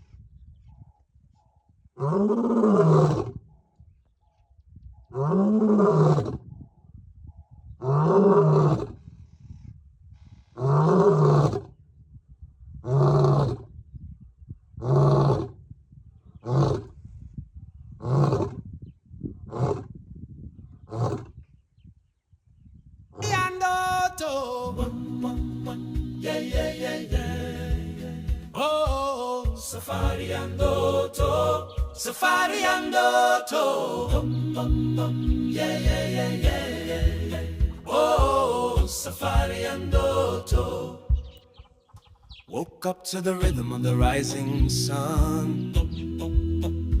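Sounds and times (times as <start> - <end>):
lion roaring and grunting: 2.0 - 3.4, 5.1 - 6.4, 7.8 - 9.0, 10.6 - 11.7, 12.8 - 13.6, 14.8 - 15.5, 16.4 - 16.9, 18.0 - 18.6, 19.5 - 19.9, 20.8 - 21.3.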